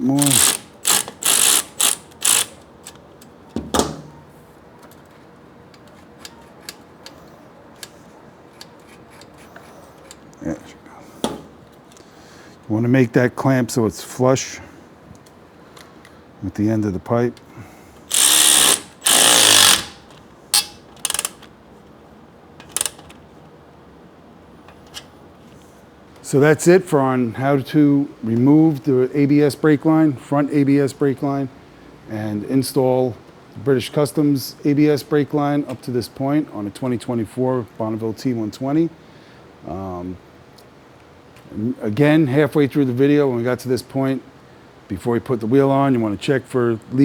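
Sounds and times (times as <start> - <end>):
metal scraping rasps: 0.2 - 2.6, 18.1 - 21.4
power tool running: 0.2 - 2.6, 18.1 - 20.0
ratchet wrench clicking: 0.2 - 3.0, 18.1 - 21.5, 22.6 - 23.1.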